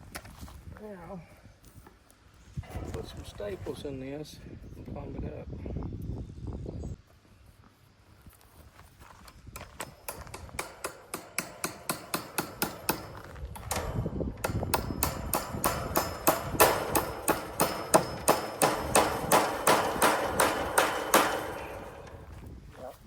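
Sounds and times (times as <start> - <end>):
hammer driving staples into wood: 9.6 - 22.3.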